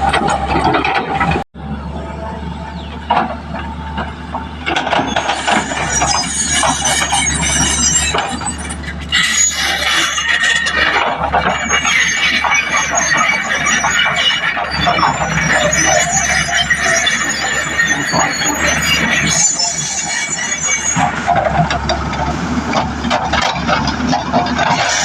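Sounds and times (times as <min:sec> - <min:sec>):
low engine drone: 0:00.0 - 0:06.2
metallic squealing and clinking: 0:02.8 - 0:25.0.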